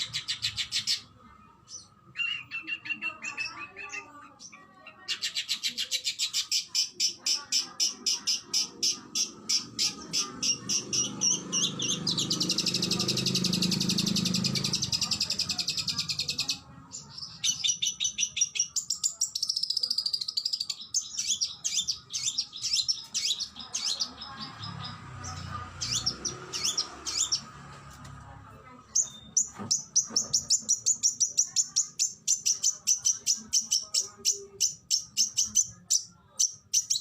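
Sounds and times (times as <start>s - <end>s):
songbird singing fast bursts: 8.6s - 16.5s.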